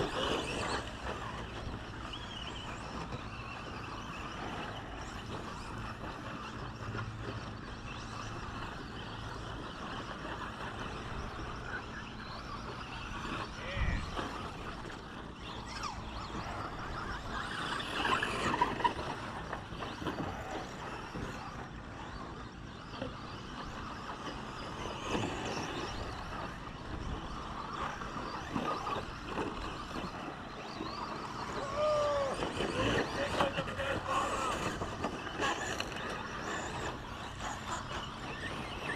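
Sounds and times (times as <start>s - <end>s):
rc truck motors and tyres: 0.0s - 38.9s.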